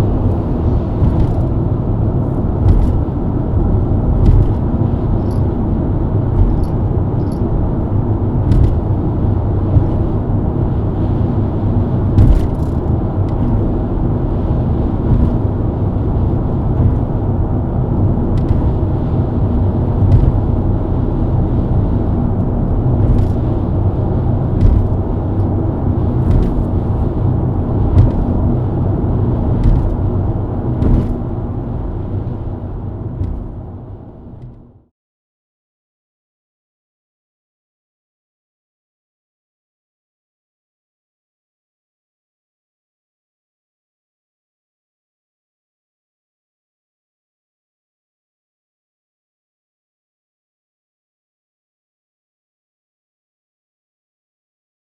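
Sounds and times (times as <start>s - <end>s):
car engine cruising: 0.0s - 34.8s
thumps from the road: 0.1s - 5.6s, 6.3s - 7.6s, 8.4s - 10.3s, 12.1s - 13.7s, 15.0s - 15.6s, 18.3s - 18.9s, 19.9s - 20.7s, 22.9s - 23.8s, 24.5s - 32.4s, 33.1s - 33.7s.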